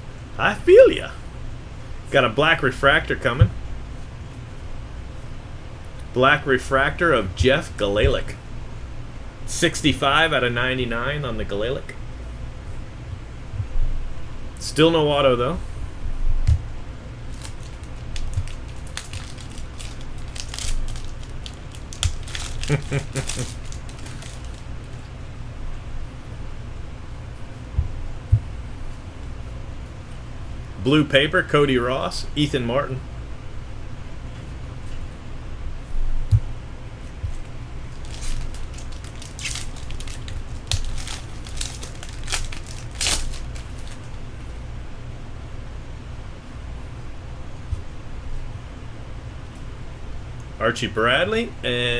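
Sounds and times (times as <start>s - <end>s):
steady low hum: 0.0s - 51.9s
pack wrappers crinkling: 17.2s - 25.0s, 37.9s - 44.2s
cards flipping: 17.3s - 25.1s, 37.3s - 44.2s.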